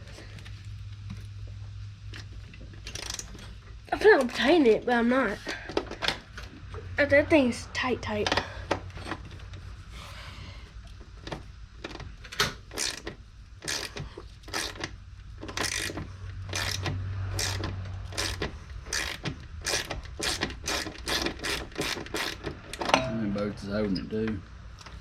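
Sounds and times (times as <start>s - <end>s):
ratchet wrench clicking: 2.8s - 3.4s, 12.7s - 22.8s.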